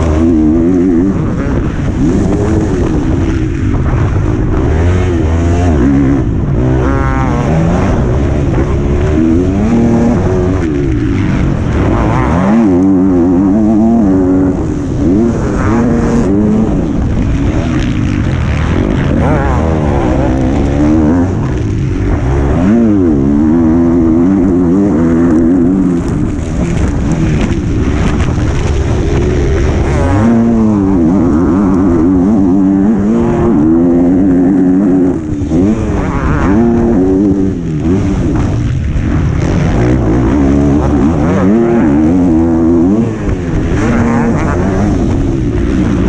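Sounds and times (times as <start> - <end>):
motocross bike engine revving: 0.0 - 46.0.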